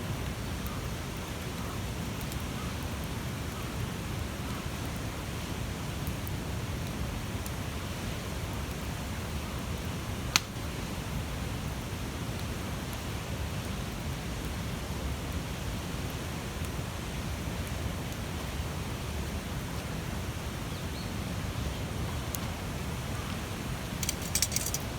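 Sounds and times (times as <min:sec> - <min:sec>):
bonfire hissing and crackling: 0:00.1 - 0:24.9
burning wood popping: 0:24.0 - 0:24.9.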